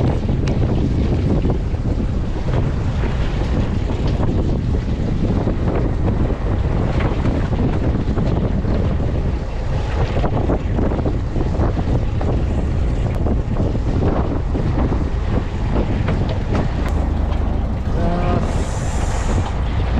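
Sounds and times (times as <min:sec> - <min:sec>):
steady low rumble: 0:00.0 - 0:19.9
wind buffeting microphone: 0:00.0 - 0:19.9
water splashing: 0:16.9 - 0:19.9.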